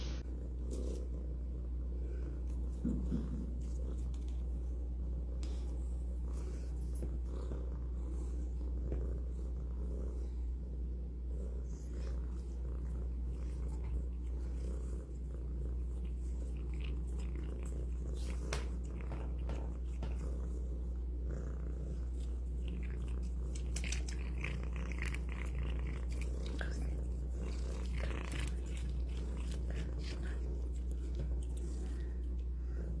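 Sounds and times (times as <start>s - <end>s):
cat purring: 0.0s - 33.0s
cat chewing crunchy food: 11.8s - 32.9s.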